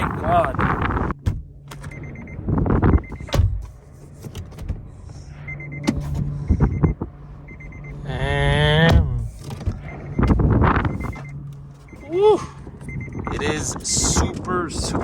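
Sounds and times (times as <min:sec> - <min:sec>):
knocks and rumble: 0:00.0 - 0:15.0
steady low hum: 0:00.0 - 0:15.0
person calling out: 0:08.0 - 0:09.3, 0:12.0 - 0:12.6
wind buffeting microphone: 0:12.6 - 0:15.0.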